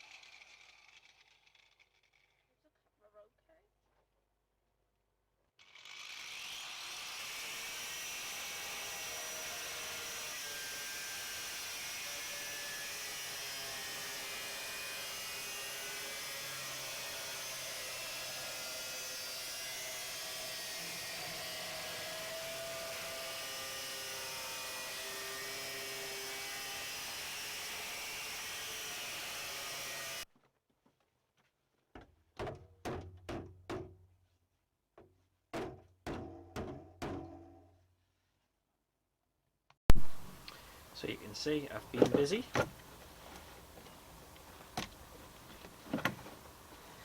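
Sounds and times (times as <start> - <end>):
angle grinder cutting sheet steel: 5.7 - 30.2
metal tools knocking and clunking: 41.8 - 42.8.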